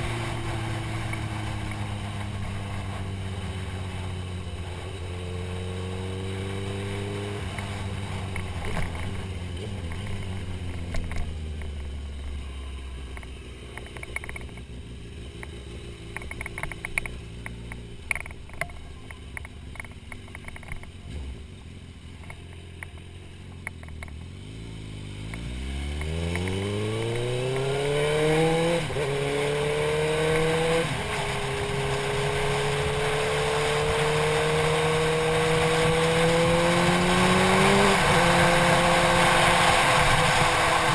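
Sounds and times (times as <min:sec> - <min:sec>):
motorcycle engine: 0:00.0 - 0:40.9.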